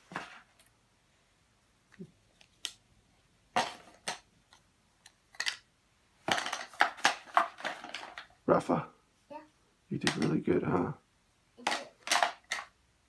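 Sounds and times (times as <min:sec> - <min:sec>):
small hard objects clattering: 0:06.2 - 0:08.3, 0:11.6 - 0:12.7.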